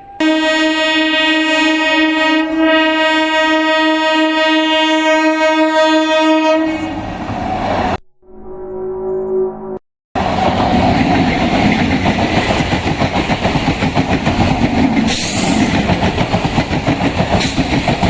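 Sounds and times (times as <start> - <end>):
train horn blast: 0.2 - 7.2
train rushing past: 6.2 - 8.0, 10.2 - 18.0.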